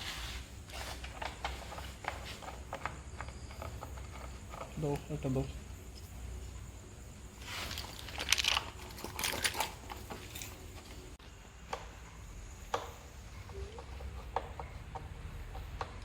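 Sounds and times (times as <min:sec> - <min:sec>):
small metal parts rattling: 0:07.4 - 0:11.0.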